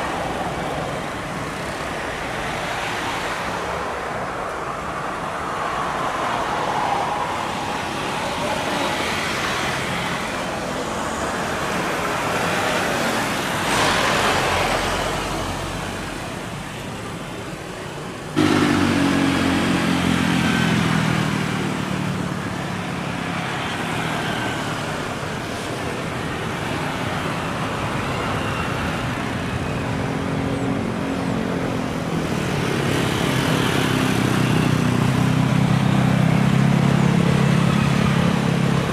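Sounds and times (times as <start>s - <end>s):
jet airliner engine roar: 0.0s - 38.9s
road traffic: 0.0s - 38.9s.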